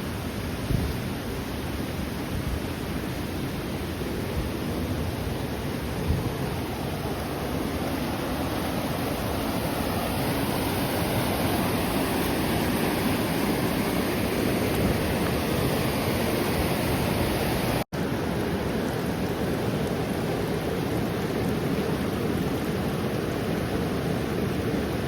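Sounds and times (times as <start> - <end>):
fast river rushing: 0.0 - 25.0.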